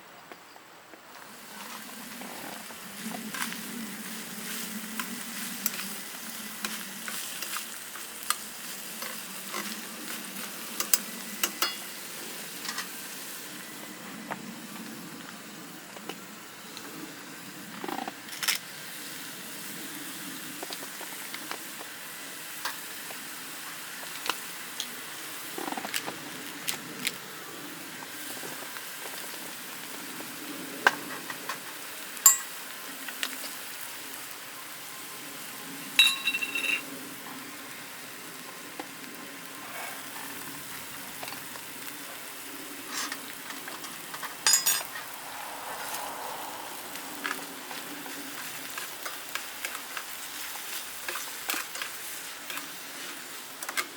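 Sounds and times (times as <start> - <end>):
food sizzling in a frying pan: 1.3 - 53.9
ringing metal clinks: 36.0 - 36.8, 44.5 - 44.9.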